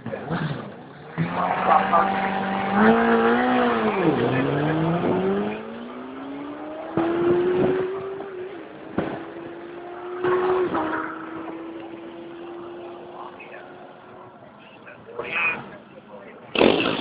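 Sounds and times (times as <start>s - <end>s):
motorcycle engine revving: 0.5s - 14.3s
sharp cracks: 16.5s - 17.0s.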